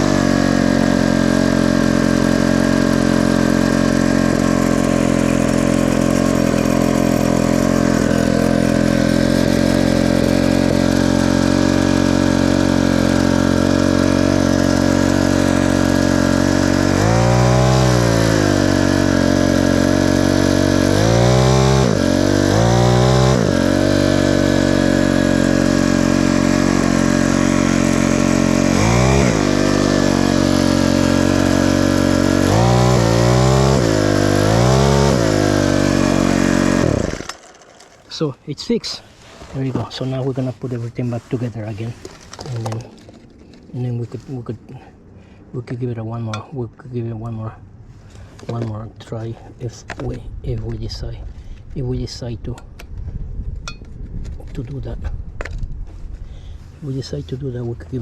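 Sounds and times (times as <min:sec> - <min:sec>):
small engine idling and revving: 0:00.0 - 0:38.2.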